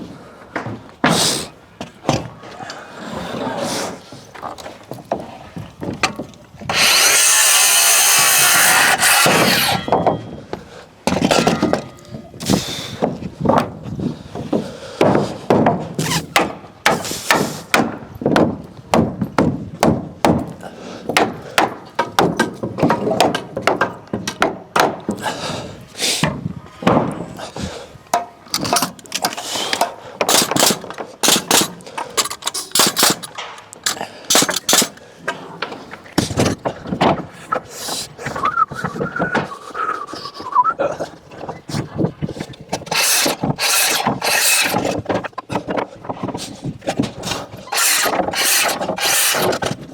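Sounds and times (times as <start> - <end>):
hammer nailing timber framing: 5.0 - 13.8, 14.4 - 25.3, 26.2 - 27.4, 28.1 - 35.0, 42.7 - 49.8
power saw cutting timber: 6.7 - 10.0, 42.8 - 45.0, 47.7 - 49.8.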